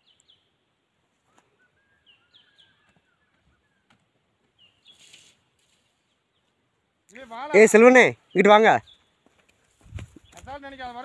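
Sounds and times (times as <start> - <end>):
faint bird chirps: 1.2 - 6.6
faint rustle: 2.8 - 6.6.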